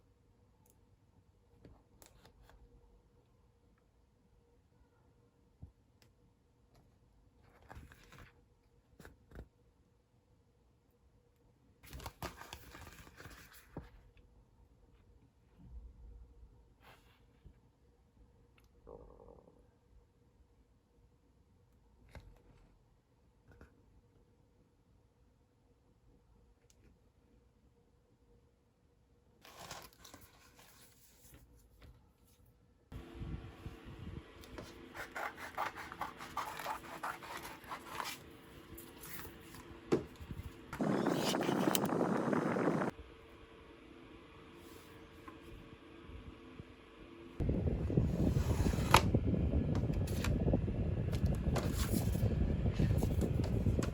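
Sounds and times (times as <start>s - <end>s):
scratching and rubbing strokes: 34.6s - 39.6s.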